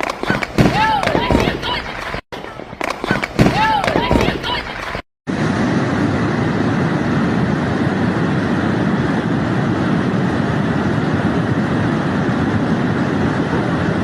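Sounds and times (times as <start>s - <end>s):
loud rushing rumble: 5.3s - 14.0s.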